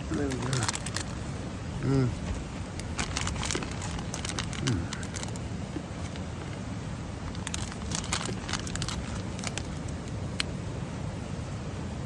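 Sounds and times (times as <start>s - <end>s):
wind and rain on a tent: 0.0s - 12.0s.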